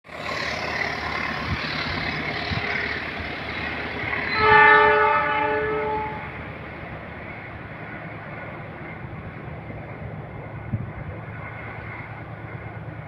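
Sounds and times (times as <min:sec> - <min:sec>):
train rushing past: 0:00.1 - 0:13.0
locomotive horn blast: 0:04.2 - 0:06.5.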